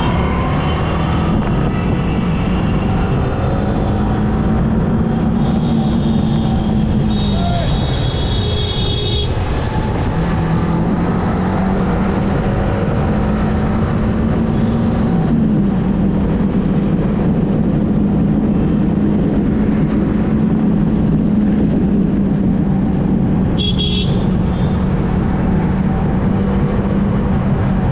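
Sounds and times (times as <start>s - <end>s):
motorcycle engine cruising: 0.0s - 7.3s
wind rush: 0.0s - 27.9s
vehicle horn beeping: 5.4s - 9.4s, 23.6s - 24.8s.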